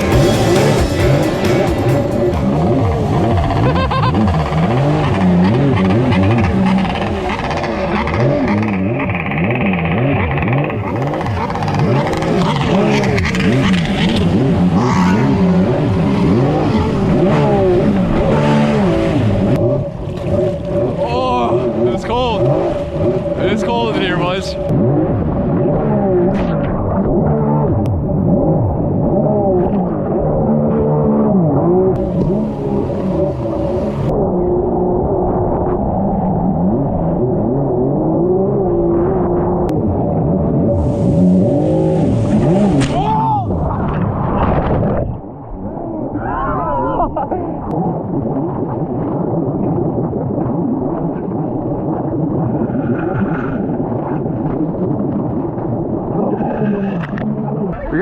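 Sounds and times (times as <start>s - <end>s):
jet ski engine revving: 0.0s - 46.0s
muffled vehicle rumble: 0.0s - 58.0s.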